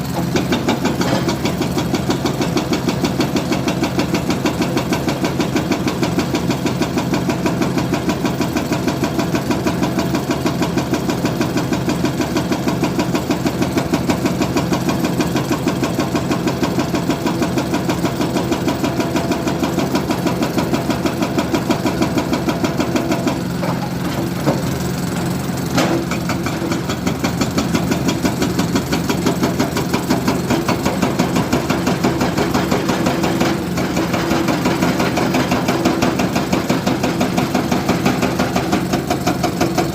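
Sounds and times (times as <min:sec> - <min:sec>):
diesel engine chugging: 0:19.5 - 0:39.9.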